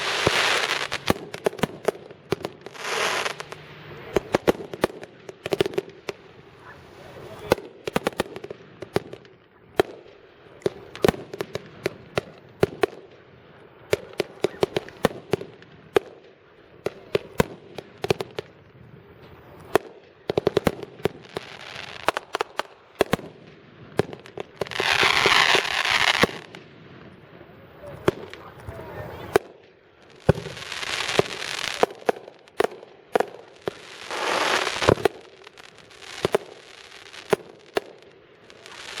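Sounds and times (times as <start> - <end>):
fireworks hissing crackling burst: 0.0 - 9.2, 19.0 - 39.0
fireworks bangs and pops: 0.0 - 39.0.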